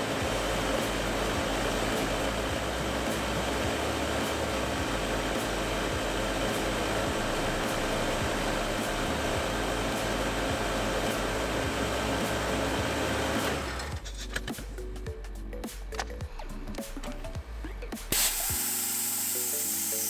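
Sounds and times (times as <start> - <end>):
blower air rush with hum: 0.0 - 14.3, 18.1 - 20.0.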